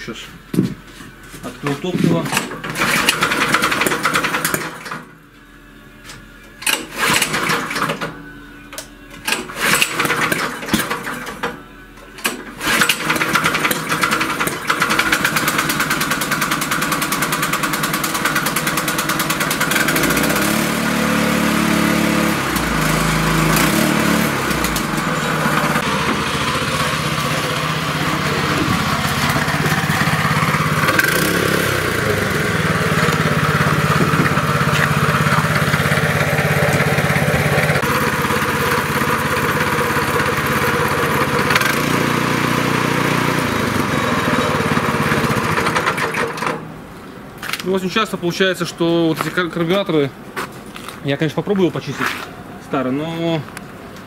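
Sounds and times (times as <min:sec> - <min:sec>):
engine pull-start attempts: 0:02.1 - 0:05.1, 0:06.6 - 0:08.2, 0:09.1 - 0:11.6, 0:12.2 - 0:46.7
petrol engine running: 0:02.3 - 0:05.1, 0:06.4 - 0:47.3.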